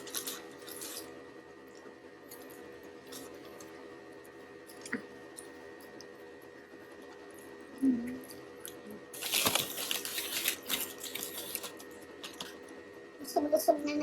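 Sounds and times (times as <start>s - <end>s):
food packaging crinkling: 0.0s - 3.8s, 8.6s - 12.8s
faint steady hum: 0.0s - 14.0s.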